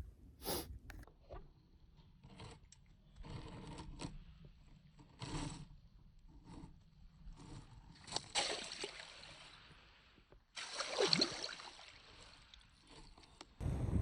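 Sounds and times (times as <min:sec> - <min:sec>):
faint scraping and rustling: 0:01.9 - 0:08.3.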